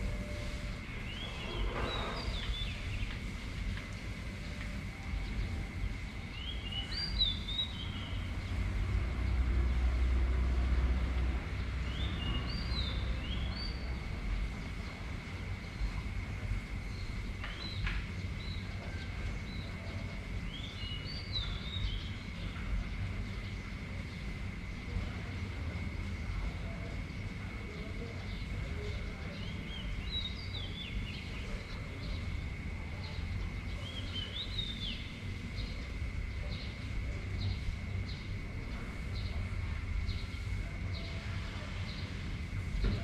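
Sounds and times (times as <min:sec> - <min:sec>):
high thin whine: 0:00.0 - 0:07.1
bird chirping: 0:00.0 - 0:08.7, 0:16.8 - 0:22.5
low wind rumble: 0:00.0 - 0:43.0.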